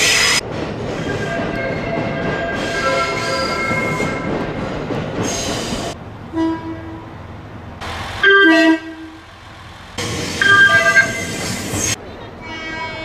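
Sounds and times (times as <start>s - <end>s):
train running noise: 0.0s - 13.0s
train horn blasts: 6.3s - 7.1s, 8.2s - 9.2s, 12.4s - 13.0s.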